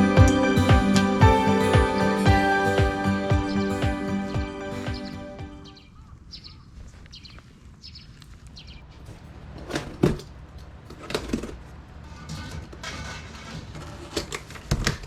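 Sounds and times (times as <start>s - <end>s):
small bird chirping: 3.4s - 9.0s.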